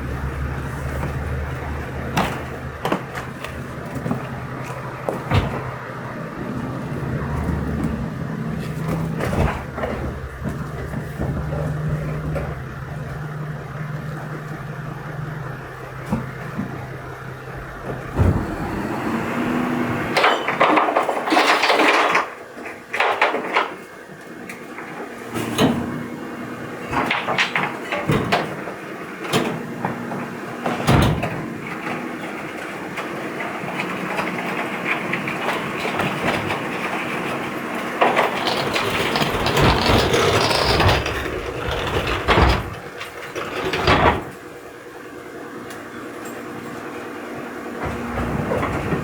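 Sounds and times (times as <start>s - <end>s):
garbage truck engine running: 0.0s - 22.9s, 24.0s - 49.0s
knocks and clunks: 16.0s - 21.3s
loud bursts of clattering: 33.8s - 44.5s.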